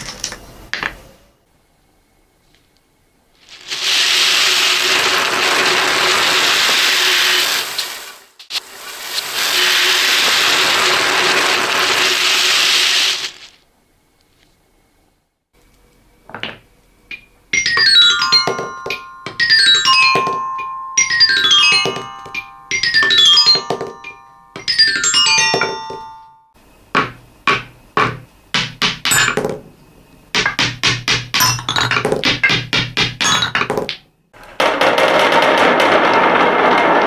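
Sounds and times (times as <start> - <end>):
marbles ringing on xylophone bars: 17.1 - 29.8, 30.4 - 34.0
hard clicks and knocks: 27.0 - 34.1.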